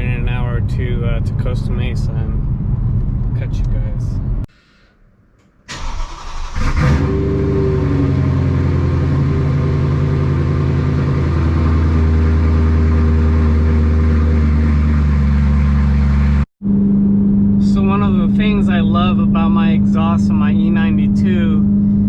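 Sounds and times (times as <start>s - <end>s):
car engine through loud exhaust: 6.1s - 22.0s.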